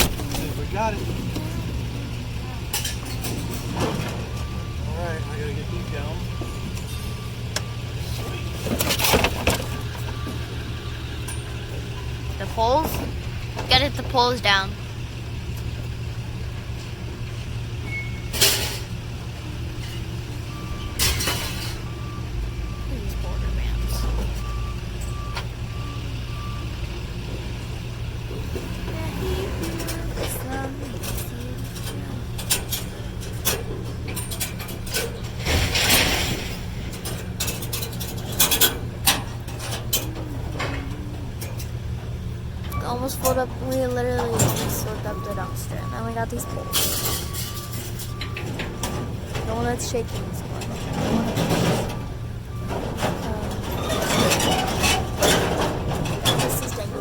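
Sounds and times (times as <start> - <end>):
vehicle engine idling: 0.0 - 57.0
scrap metal clanking: 7.9 - 10.3, 28.3 - 45.8, 46.7 - 57.0.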